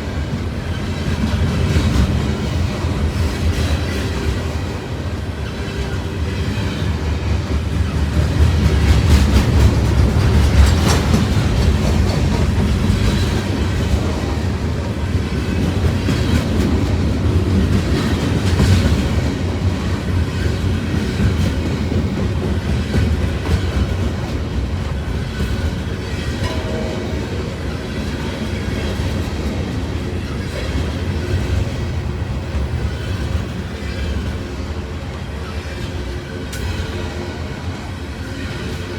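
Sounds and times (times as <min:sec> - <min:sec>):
freight train rumbling past: 0:00.0 - 0:38.9
wheels clicking over rail joints: 0:06.8 - 0:34.4.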